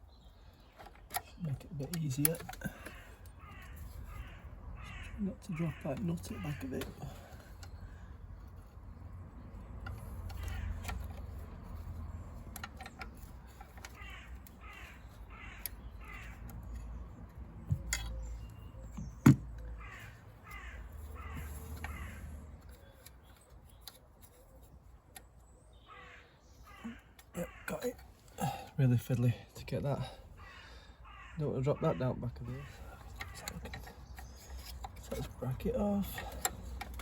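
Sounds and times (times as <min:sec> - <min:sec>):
crow cawing: 0:02.6 - 0:08.1, 0:13.6 - 0:16.9, 0:19.8 - 0:22.3, 0:25.8 - 0:28.7, 0:30.0 - 0:33.6.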